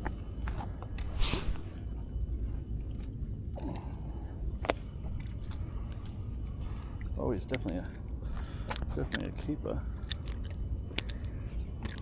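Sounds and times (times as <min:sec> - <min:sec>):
steady low rumble: 0:00.0 - 0:12.0
fishing gear clicks and handling: 0:04.6 - 0:12.0.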